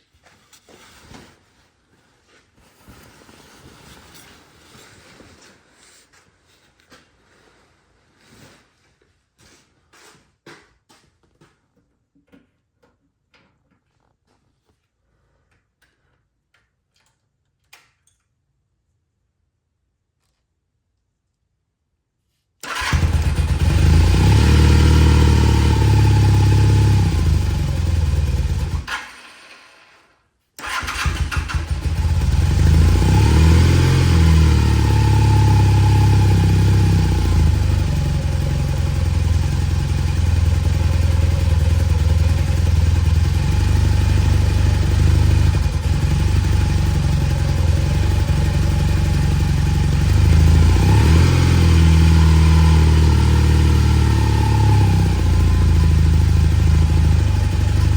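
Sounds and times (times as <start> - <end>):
motorcycle engine running: 22.7 - 29.1, 30.6 - 57.9.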